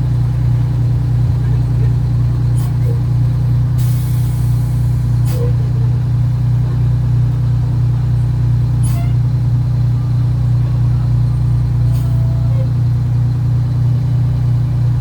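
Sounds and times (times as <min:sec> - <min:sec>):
truck engine running low hum: 0:00.0 - 0:15.0.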